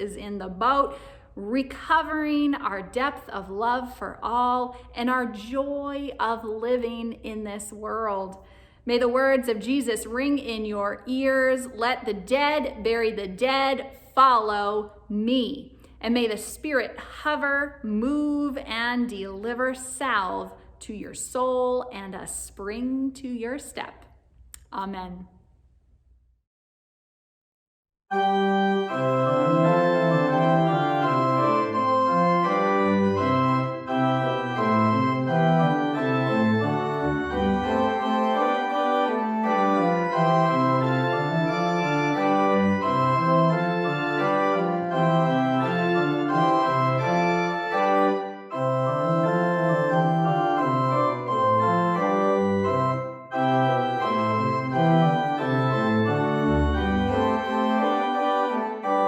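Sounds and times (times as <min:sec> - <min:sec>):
organ music: 0:28.1 - 0:59.0.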